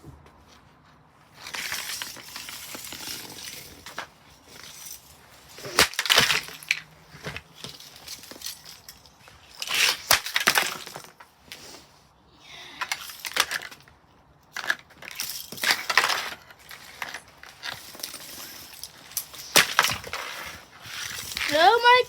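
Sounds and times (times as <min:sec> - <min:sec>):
loose parts rattling: 0:01.4 - 0:11.6, 0:12.8 - 0:22.0
plastic casing being smashed: 0:05.5 - 0:08.8, 0:09.6 - 0:11.2, 0:19.0 - 0:21.5.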